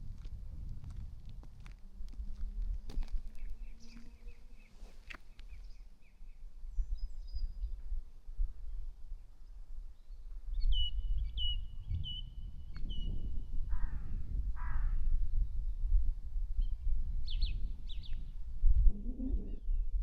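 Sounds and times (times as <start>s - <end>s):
steady low rumble: 0.0s - 7.0s
crow cawing: 13.7s - 15.0s.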